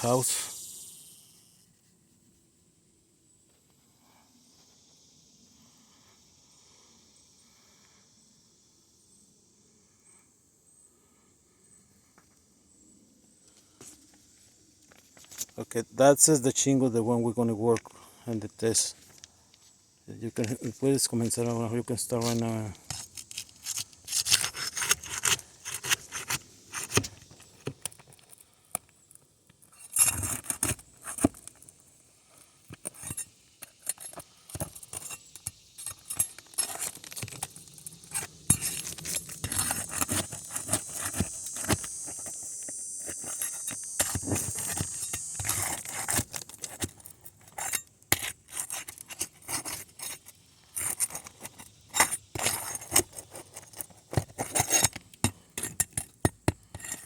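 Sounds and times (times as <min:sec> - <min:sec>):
metal tool scraping shingles: 0:20.4 - 0:28.3, 0:29.7 - 0:31.7, 0:32.7 - 0:57.0.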